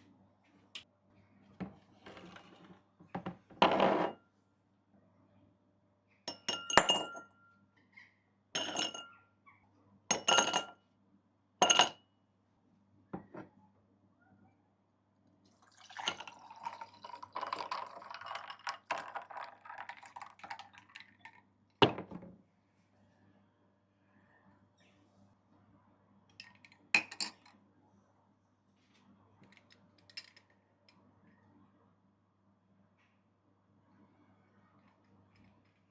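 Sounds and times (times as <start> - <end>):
glass clinking: 6.3 - 7.4, 8.6 - 9.1, 10.1 - 10.8, 11.6 - 12.0, 15.7 - 19.1
liquid pouring into a glass: 15.5 - 21.4.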